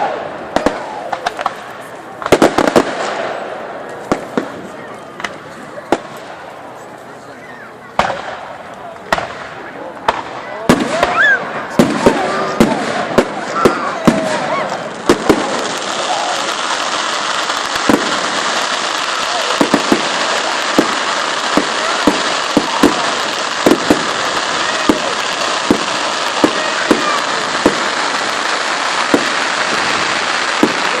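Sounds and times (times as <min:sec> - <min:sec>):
fireworks bangs: 0:00.0 - 0:31.0
fireworks crackling hiss: 0:00.0 - 0:31.0.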